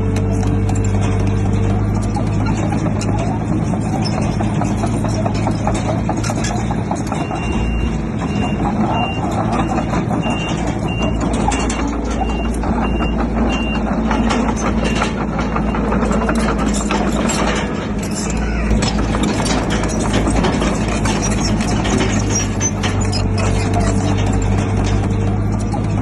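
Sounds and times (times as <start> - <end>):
diesel engine humming: 0.0 - 26.0
clattering: 0.1 - 26.0
reversing alarm beeps: 7.2 - 15.9.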